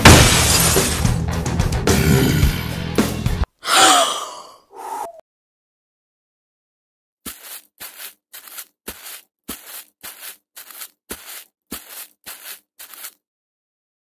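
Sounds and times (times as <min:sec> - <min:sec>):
cartoon footsteps scuffing: 0:07.2 - 0:13.2.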